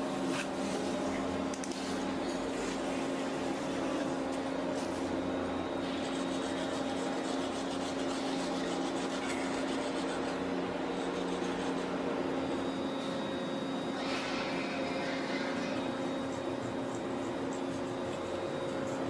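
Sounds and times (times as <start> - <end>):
machine humming: 0.0 - 19.0
rasping tool rubbing: 15.8 - 19.0.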